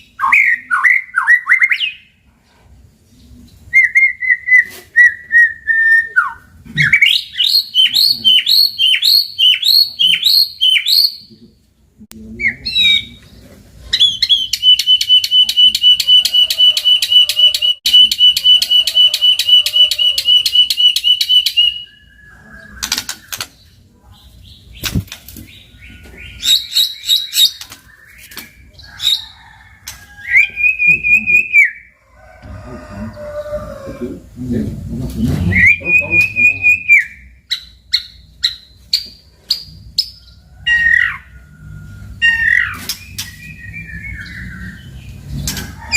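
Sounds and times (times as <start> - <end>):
songbird singing with trills: 3.7 - 11.3, 14.0 - 23.5, 35.4 - 41.3.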